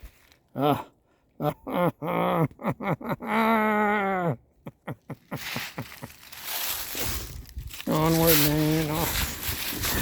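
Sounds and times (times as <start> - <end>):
man wailing: 0.6 - 4.5.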